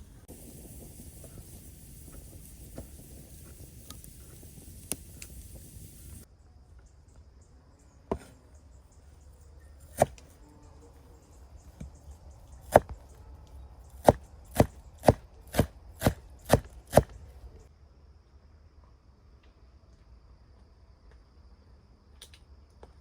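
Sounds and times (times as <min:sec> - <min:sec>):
knife chopping on cutting board: 0:09.9 - 0:10.2.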